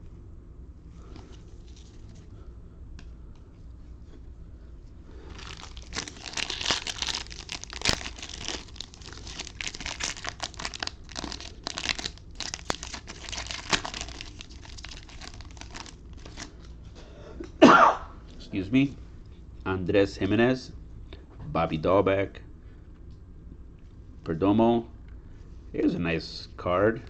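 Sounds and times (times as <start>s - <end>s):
wrapper crinkling and tearing: 1.1s - 2.2s, 5.2s - 16.8s.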